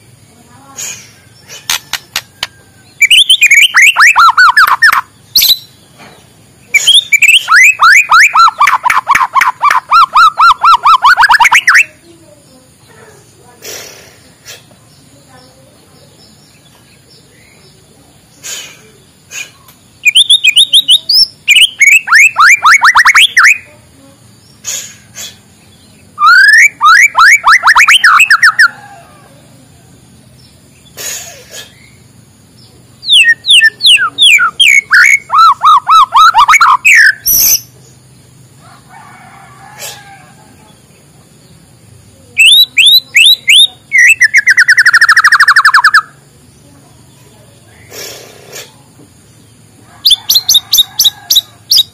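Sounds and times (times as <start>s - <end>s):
songbird singing sliding notes: 0.0s - 12.2s, 13.8s - 28.8s, 30.1s - 38.2s, 40.7s - 51.9s
bird clicks and chirps: 1.7s - 5.7s.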